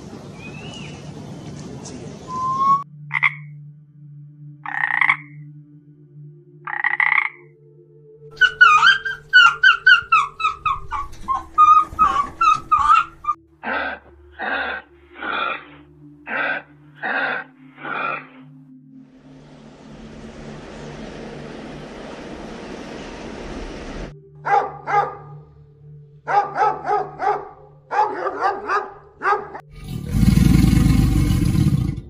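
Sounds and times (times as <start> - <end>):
toad croaking: 3.1 - 3.5, 4.6 - 5.5, 6.6 - 7.5, 8.4 - 18.4
fox yipping in high chirps: 8.4 - 13.4
animal short harsh calls: 8.4 - 18.3.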